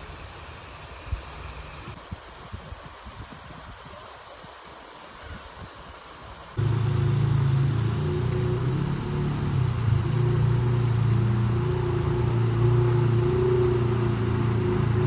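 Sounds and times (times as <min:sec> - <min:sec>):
engine running steadily: 0:06.6 - 0:15.0.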